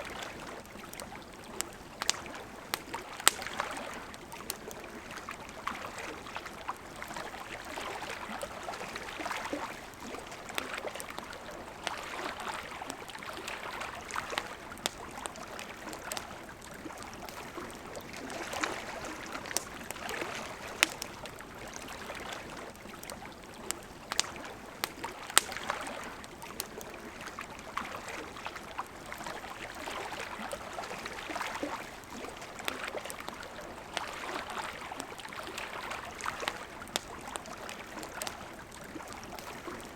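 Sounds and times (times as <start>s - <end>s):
campfire crackling: 0.0s - 39.9s
river water flowing: 0.0s - 39.9s.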